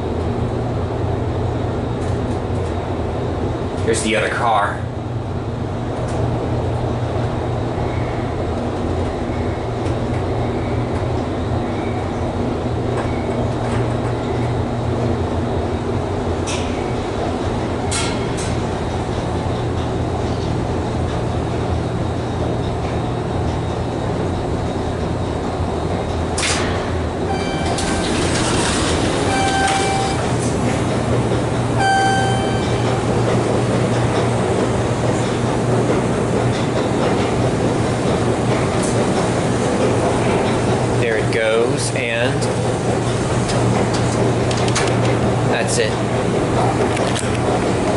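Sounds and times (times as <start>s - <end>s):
elevator car rumbling: 0.0s - 47.9s
short electronic beeps: 27.3s - 28.0s, 29.3s - 30.2s, 31.8s - 33.0s.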